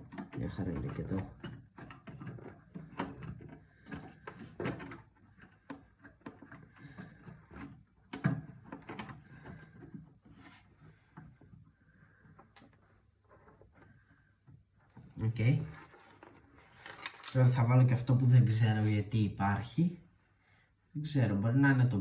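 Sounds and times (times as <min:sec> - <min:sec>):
computer parts clicking and knocking: 0:00.0 - 0:10.4.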